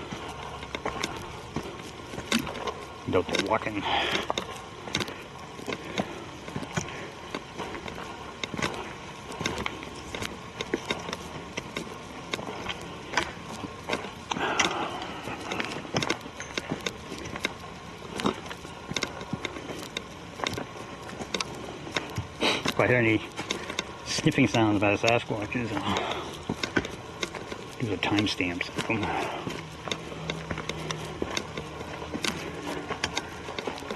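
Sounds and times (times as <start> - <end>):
footsteps crunching leaf litter: 22.4 - 33.9.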